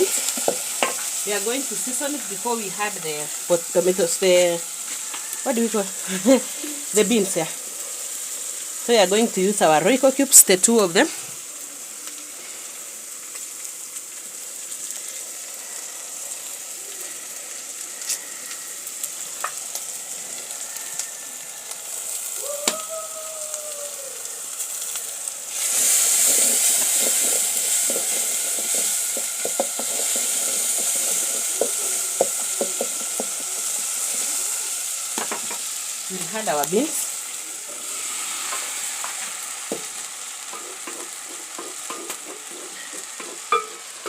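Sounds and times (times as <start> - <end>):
vegetables sizzling in a pot: 0.0 - 44.0
spoon stirring with taps and scrapes: 26.2 - 34.2, 40.5 - 44.0.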